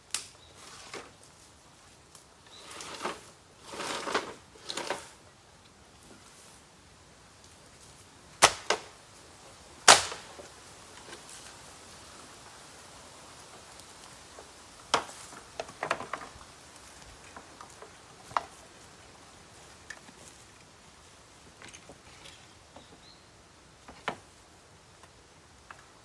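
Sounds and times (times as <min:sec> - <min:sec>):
bamboo fire crackling and popping: 0:00.0 - 0:05.0, 0:07.3 - 0:18.9
faint steady hiss: 0:00.0 - 0:26.0.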